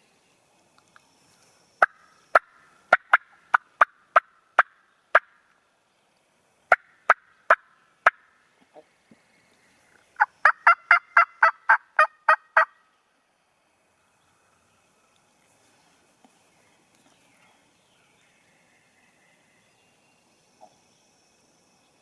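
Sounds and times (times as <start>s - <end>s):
turkey yelping: 10.2s - 12.7s.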